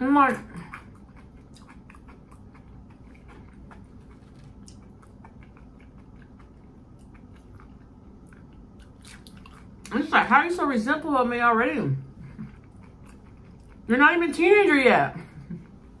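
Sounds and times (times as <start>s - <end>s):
low steady hum: 0.0s - 16.0s
chewing fried food: 0.2s - 10.1s, 12.1s - 16.0s.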